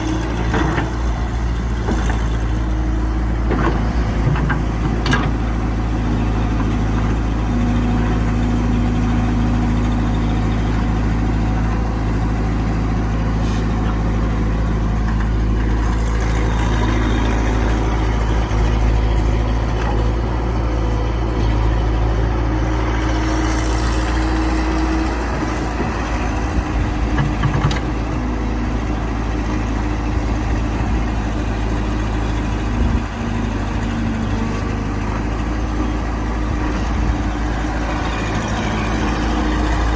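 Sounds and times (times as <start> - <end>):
excavator diesel engine working: 0.0 - 39.9.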